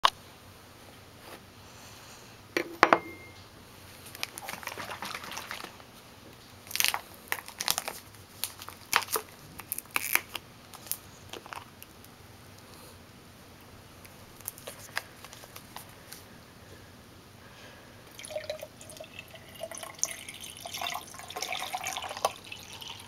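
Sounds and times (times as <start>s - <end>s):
fish sticks crunching: 6.7s - 11.7s.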